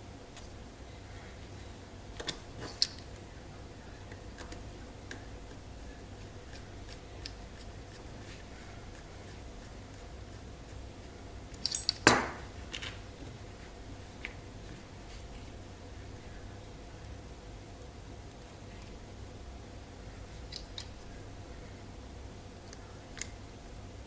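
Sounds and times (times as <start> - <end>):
small tools being handled: 11.6 - 12.1.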